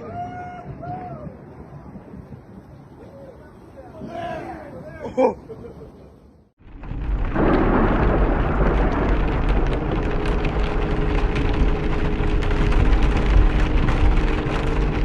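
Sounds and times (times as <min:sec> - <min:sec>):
heavy rain: 0:06.6 - 0:15.0
low rumble: 0:06.6 - 0:15.0
raindrops ticking on surface: 0:06.6 - 0:15.0.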